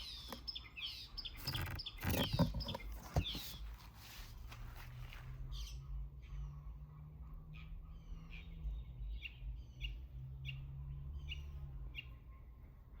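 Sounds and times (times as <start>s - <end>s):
small bird chirping: 0.0s - 6.7s.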